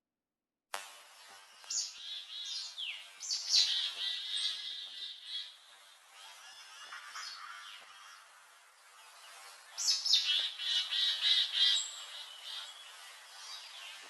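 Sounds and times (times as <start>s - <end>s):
small birds chirping: 1.3s - 14.0s.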